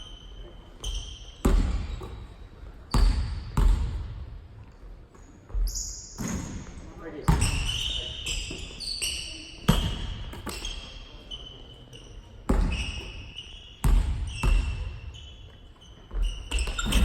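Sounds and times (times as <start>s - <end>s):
basketball bouncing on gym floor: 0.8s - 4.4s, 7.2s - 8.0s, 9.7s - 10.7s, 12.5s - 13.2s, 13.8s - 15.1s, 16.1s - 17.0s
short high squeaks: 14.4s - 17.0s.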